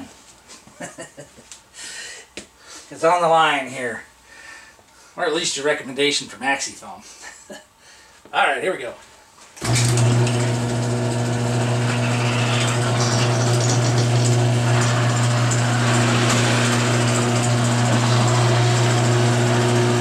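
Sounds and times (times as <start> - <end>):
garage door opener humming: 9.6 - 20.0
garage door rolling up: 9.6 - 20.0.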